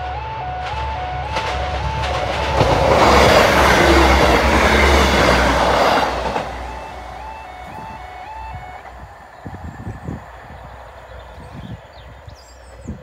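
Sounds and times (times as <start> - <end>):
two-tone crossing alarm: 0.0 - 11.8
train wheels clattering over rails: 0.6 - 8.2.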